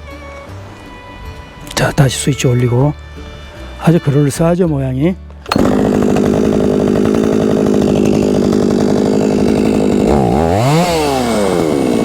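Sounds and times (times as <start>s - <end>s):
chainsaw engine idling and revving: 5.5s - 12.0s.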